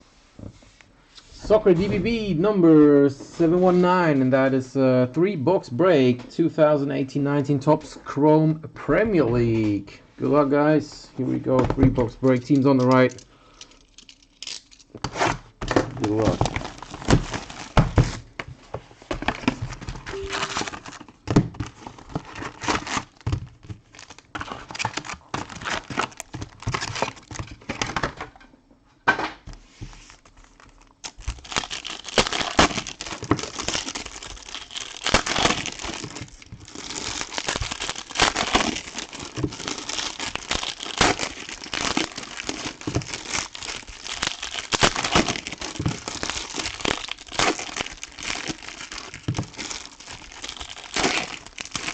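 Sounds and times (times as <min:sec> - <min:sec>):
plastic wrapping crinkling and tearing: 0:12.4 - 0:18.4, 0:19.1 - 0:28.2, 0:29.8 - 0:51.9.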